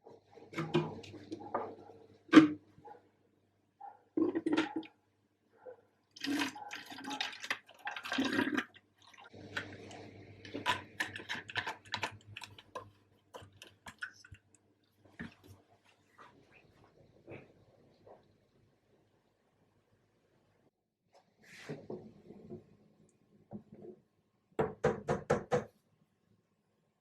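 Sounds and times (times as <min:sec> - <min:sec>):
water splashing and sloshing: 0:06.1 - 0:18.5.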